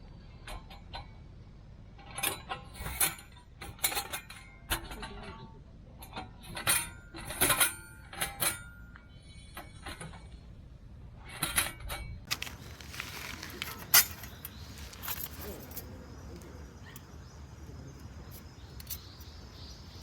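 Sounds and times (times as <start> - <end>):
thin metal pieces clinking: 12.3 - 16.2
rustling: 12.3 - 16.6.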